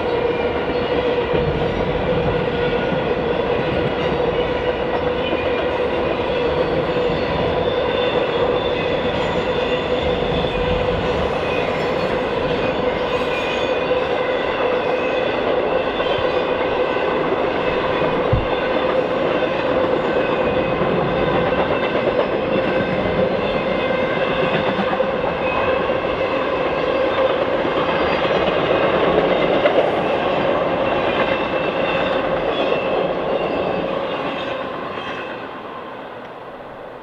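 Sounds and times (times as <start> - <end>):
train wheels on rails: 0.0 - 37.0.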